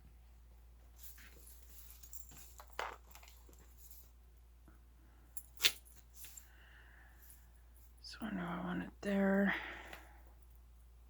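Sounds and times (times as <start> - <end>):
metal chain rustling and scraping: 0.9 - 4.4, 5.3 - 6.6.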